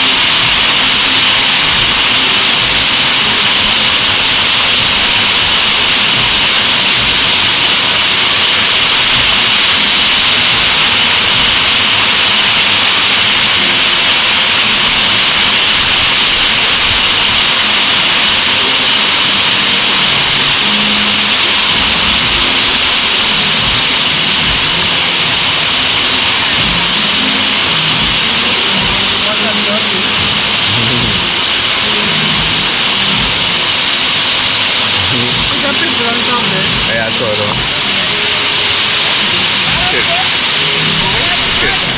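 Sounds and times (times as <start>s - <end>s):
waterfall crashing into pool: 0.0s - 41.9s.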